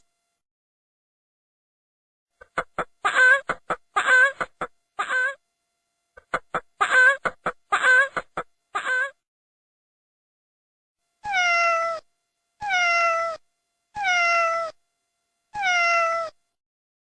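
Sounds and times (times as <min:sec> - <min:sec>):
cat meowing: 0:11.2 - 0:13.4, 0:14.0 - 0:14.8, 0:15.6 - 0:16.4.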